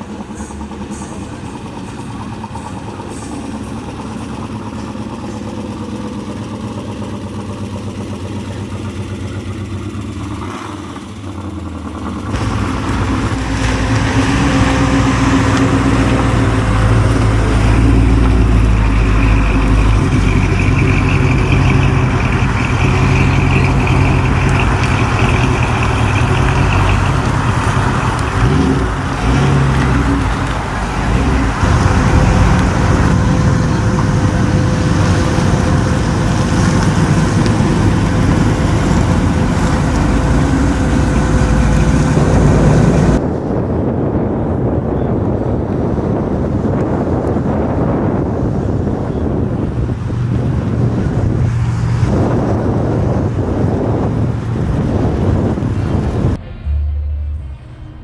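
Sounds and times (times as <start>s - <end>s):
car engine idling: 0.0s - 43.3s
deep heavy engine rumble: 0.0s - 58.0s.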